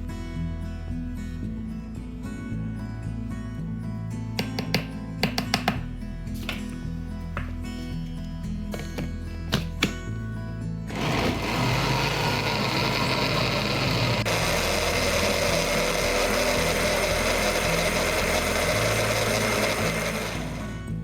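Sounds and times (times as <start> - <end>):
electric blender running: 10.9 - 21.0.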